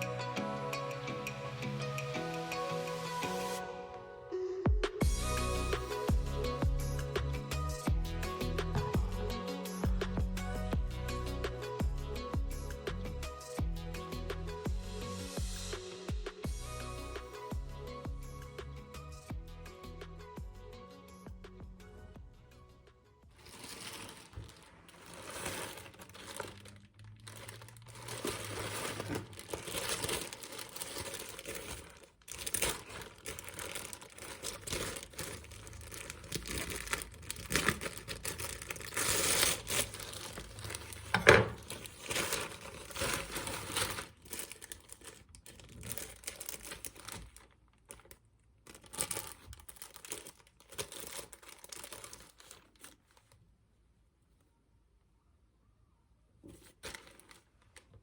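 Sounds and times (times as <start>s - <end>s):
packaging crinkling and tearing: 23.4s - 53.4s, 56.5s - 58.0s.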